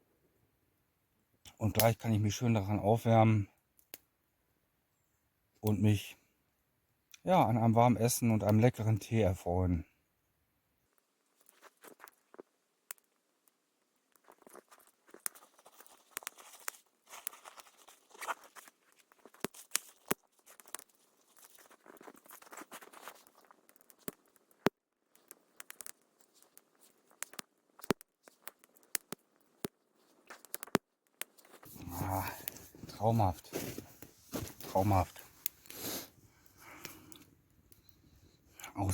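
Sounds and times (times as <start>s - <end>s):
campfire crackling and popping: 11.4s - 38.9s.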